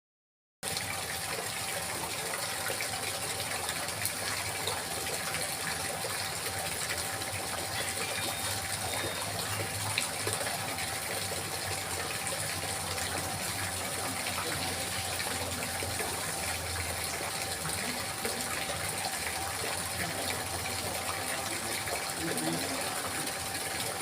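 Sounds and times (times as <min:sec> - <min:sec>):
water trickling and splashing: 0:00.6 - 0:24.0
faint steady tone: 0:07.6 - 0:10.0.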